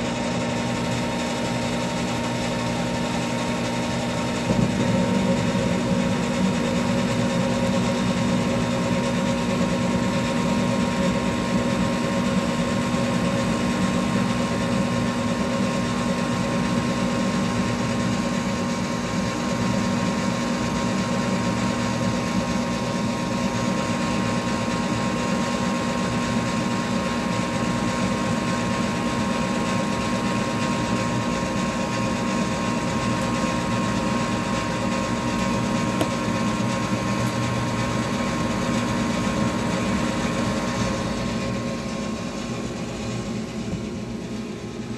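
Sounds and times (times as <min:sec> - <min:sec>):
gas furnace humming: 0:00.0 - 0:44.9.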